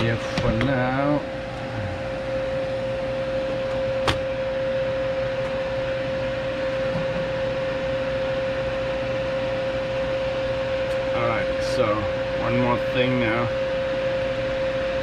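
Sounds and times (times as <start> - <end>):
fan-like machine hum: 0.0 - 15.0
mid-pitched whine: 0.0 - 15.0.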